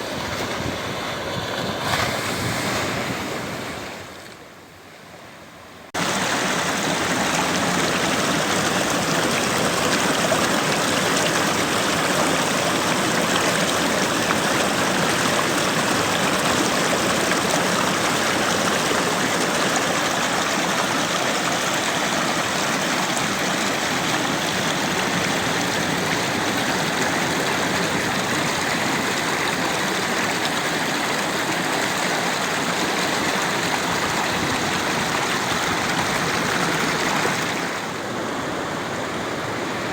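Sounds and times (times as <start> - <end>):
rushing water: 5.9 - 39.9.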